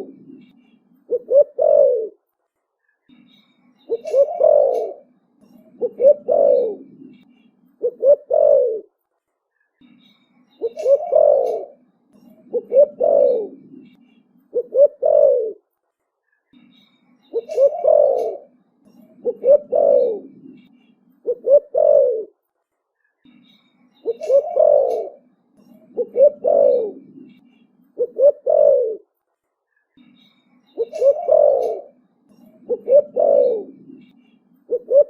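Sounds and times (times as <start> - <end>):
dove cooing: 0.0 - 0.5, 1.1 - 2.2, 3.9 - 7.2, 7.8 - 8.9, 10.6 - 15.6, 17.3 - 22.4, 24.0 - 27.4, 28.0 - 29.1, 30.8 - 34.1, 34.7 - 35.0.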